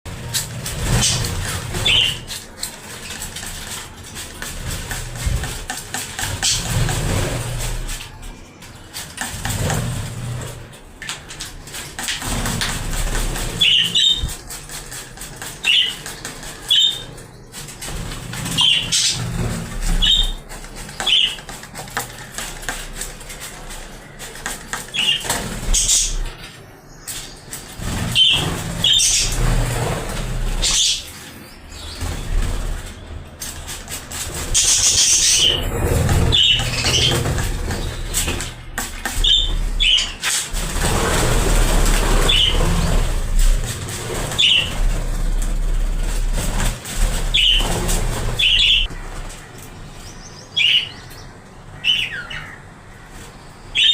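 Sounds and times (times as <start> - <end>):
wings fluttering and splashing: 0.1 - 51.0
bird chirps: 47.1 - 52.8, 53.4 - 53.9.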